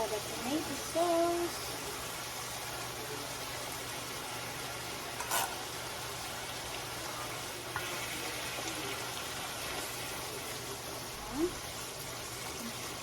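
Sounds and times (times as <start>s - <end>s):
meat sizzling in a pan: 0.0s - 13.0s.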